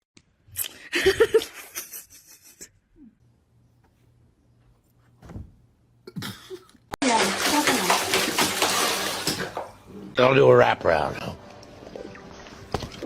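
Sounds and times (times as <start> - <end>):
person laughing: 0.8 - 3.1.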